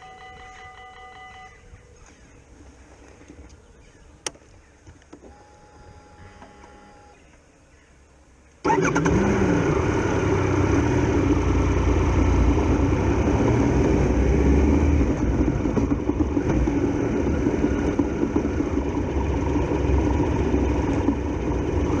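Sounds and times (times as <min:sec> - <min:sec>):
motorcycle engine idling: 0:15.0 - 0:22.0.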